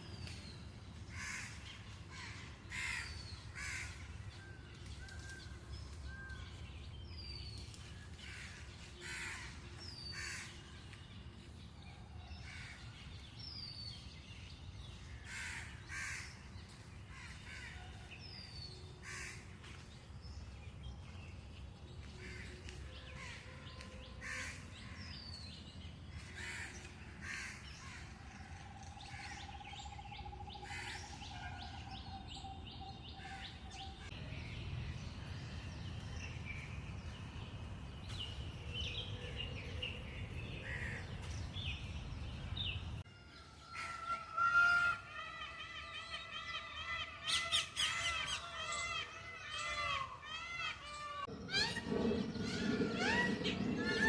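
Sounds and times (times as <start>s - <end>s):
harsh caw-like bird calls: 1.1s - 4.1s, 8.2s - 10.6s, 15.2s - 16.5s, 19.0s - 19.5s, 22.2s - 25.3s, 26.2s - 32.2s, 43.6s - 54.0s
steady low rumble: 51.3s - 54.0s.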